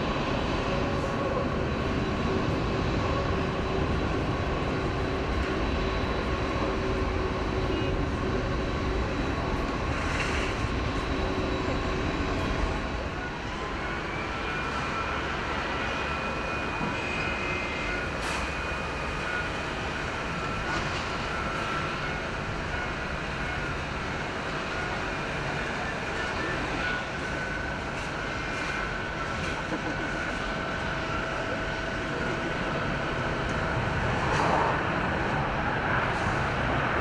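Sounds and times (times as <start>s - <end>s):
jet engines rumbling and whining: 0.0s - 37.0s.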